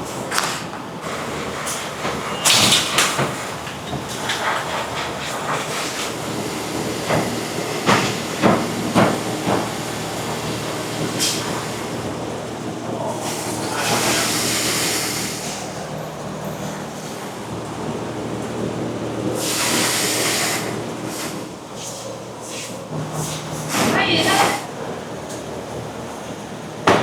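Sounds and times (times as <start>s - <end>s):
factory machinery running: 0.0s - 27.0s
compressed air hiss: 13.2s - 15.8s, 19.4s - 21.9s.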